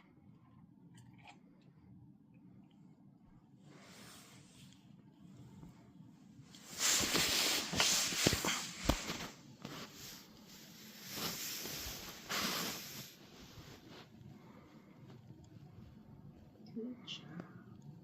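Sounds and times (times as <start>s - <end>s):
rubbing and scrubbing of paw: 6.6s - 14.2s.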